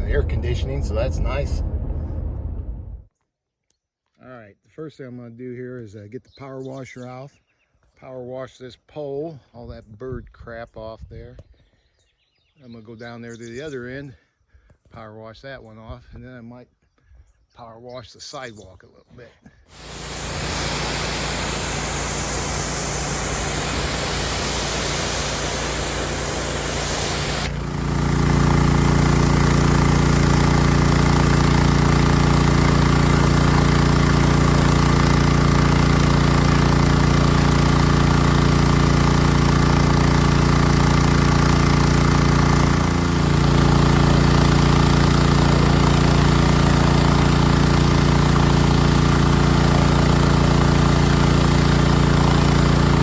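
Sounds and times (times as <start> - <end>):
pressure washer engine hum: 0.0 - 1.5, 19.7 - 53.0
water spray hissing: 19.7 - 53.0.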